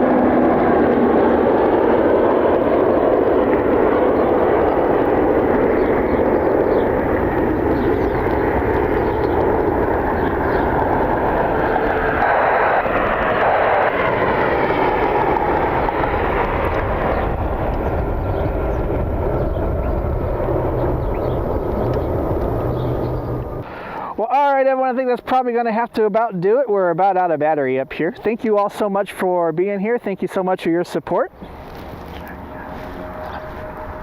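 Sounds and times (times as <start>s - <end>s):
engine whine gliding in pitch: 0.0s - 24.2s, 31.1s - 34.0s
jet engines roaring: 0.0s - 34.0s.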